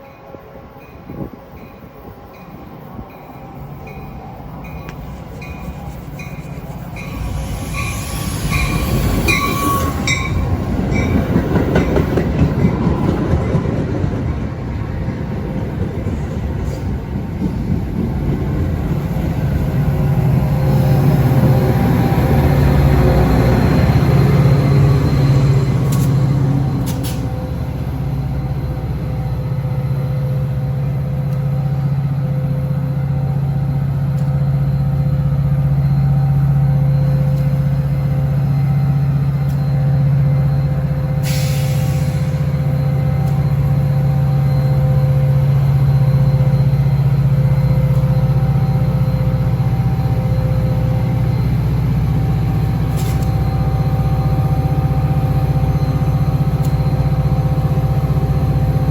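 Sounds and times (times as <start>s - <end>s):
diesel locomotive droning: 0.0s - 58.9s
air brake hiss: 26.8s - 27.4s, 41.2s - 42.6s, 52.9s - 53.3s.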